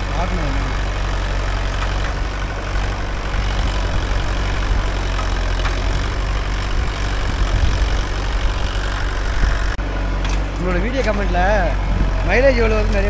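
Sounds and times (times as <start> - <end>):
man talking: 0.0 - 0.8, 10.6 - 13.0
tractor diesel engine running: 0.0 - 13.0.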